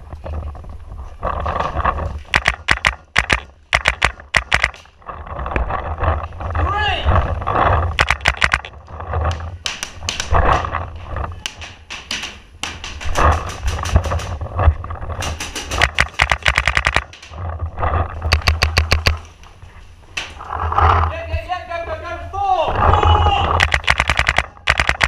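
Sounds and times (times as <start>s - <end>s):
paintball markers firing: 2.3s - 4.9s, 8.0s - 8.7s, 9.3s - 10.4s, 11.4s - 14.4s, 15.2s - 17.3s, 23.6s - 25.0s.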